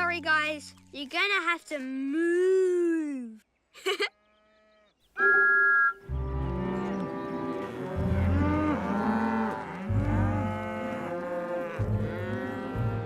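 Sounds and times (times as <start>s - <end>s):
cartoon cows mooing: 6.1s - 13.0s.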